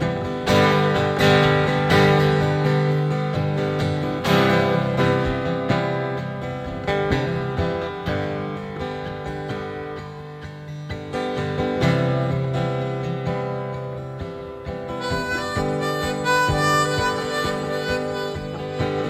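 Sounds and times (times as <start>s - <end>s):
acoustic guitar strumming: 0.0s - 19.0s
harmonica melody: 14.9s - 19.0s.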